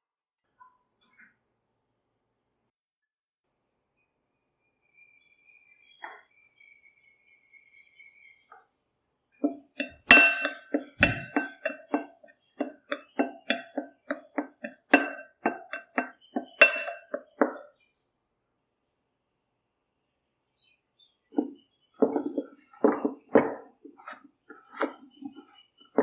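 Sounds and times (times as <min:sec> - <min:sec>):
metal spoon clinking on bowl: 0:09.4 - 0:17.6, 0:21.4 - 0:26.0.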